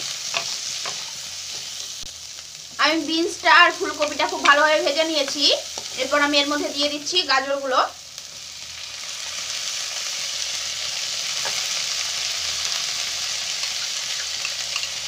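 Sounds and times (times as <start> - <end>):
vegetables sizzling in hot fat: 0.0 - 15.0.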